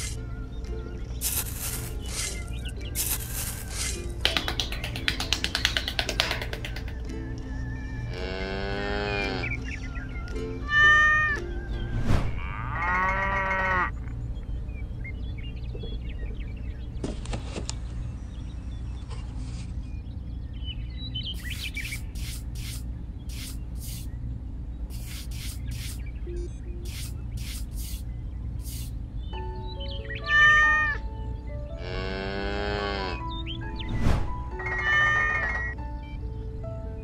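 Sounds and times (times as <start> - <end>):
hand trowel scraping sand: 1.2 - 4.0, 24.9 - 26.0, 26.9 - 28.0
low steady hum: 11.4 - 30.1.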